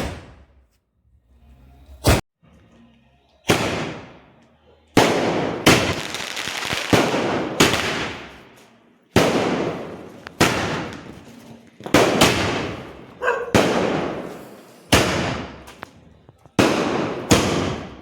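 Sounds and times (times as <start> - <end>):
firecrackers banging: 3.5 - 4.2, 5.0 - 18.0.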